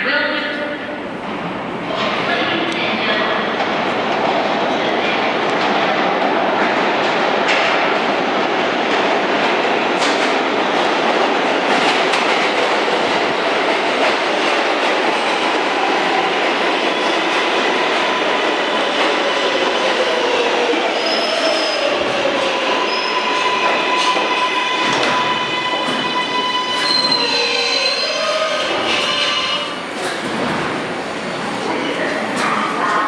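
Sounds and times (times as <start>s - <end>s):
steel wheel squeal: 25.2s - 29.6s.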